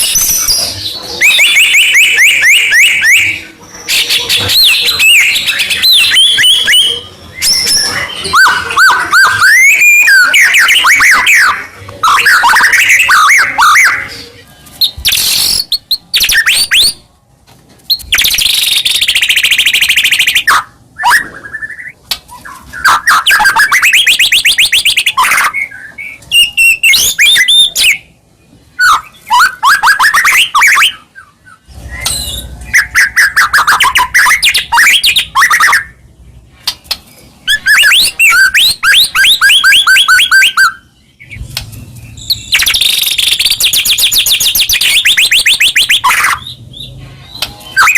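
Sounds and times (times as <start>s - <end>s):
songbird singing trills: 42.0s - 47.9s.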